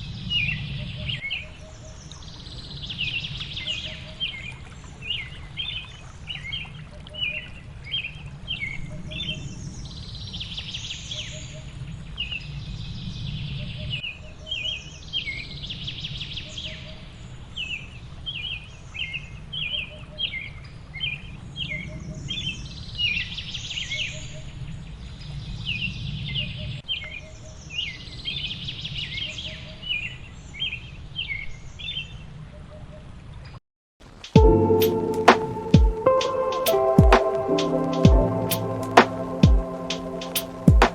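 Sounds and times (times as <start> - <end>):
high hiss: 34.1 - 40.9.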